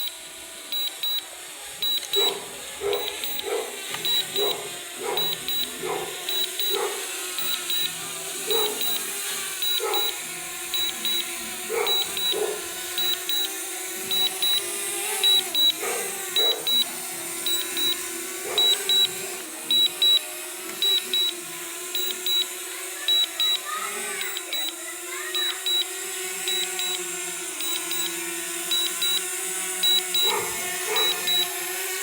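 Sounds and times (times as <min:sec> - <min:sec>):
short high beeps: 0:00.7 - 0:01.2, 0:01.8 - 0:02.4, 0:03.0 - 0:04.6, 0:05.2 - 0:05.7, 0:06.3 - 0:06.8, 0:07.4 - 0:08.0, 0:08.6 - 0:09.0, 0:09.6 - 0:10.2, 0:10.8 - 0:11.3, 0:11.9 - 0:12.4, 0:13.0 - 0:13.5, 0:14.1 - 0:15.8, 0:16.4 - 0:16.9, 0:17.5 - 0:18.0, 0:18.6 - 0:20.2, 0:20.8 - 0:21.3, 0:22.0 - 0:22.5, 0:23.1 - 0:23.6, 0:24.2 - 0:24.7, 0:25.4 - 0:25.9, 0:26.5 - 0:27.0, 0:27.6 - 0:30.4, 0:31.0 - 0:31.5.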